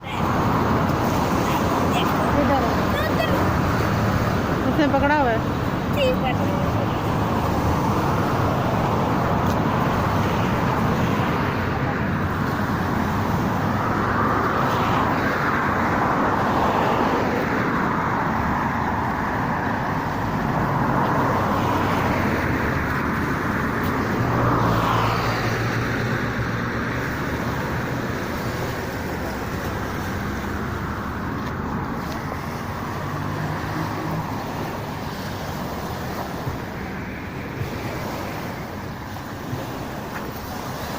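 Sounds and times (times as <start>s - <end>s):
cars passing: 0.0s - 40.9s
passing engine hum: 0.0s - 40.9s
road traffic: 0.0s - 40.9s.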